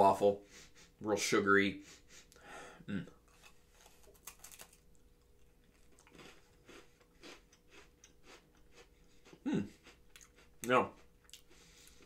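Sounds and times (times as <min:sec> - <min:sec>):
crunching and chewing cookie: 0:03.1 - 0:12.0.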